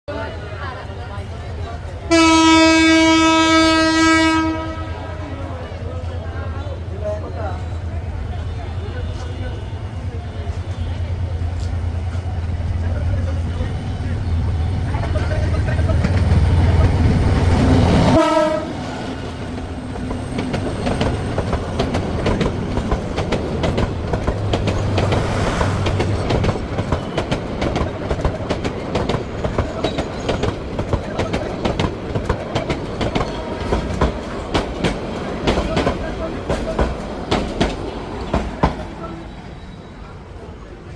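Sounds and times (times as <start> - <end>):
train horn: 2.1 - 5.3, 18.1 - 19.0
train wheels clacking: 19.1 - 39.4
carriages rattling: 19.3 - 39.4.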